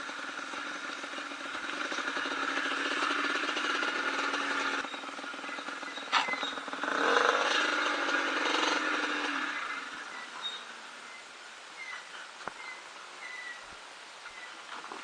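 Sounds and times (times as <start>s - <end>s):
motorcycle engine revving: 0.0s - 11.3s
faint bird chirps: 4.5s - 6.8s, 9.4s - 14.8s.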